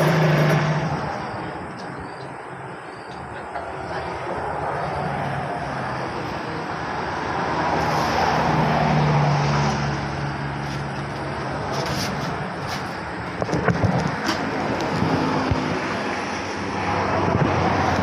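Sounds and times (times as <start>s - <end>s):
vehicle passing by: 3.9s - 12.8s.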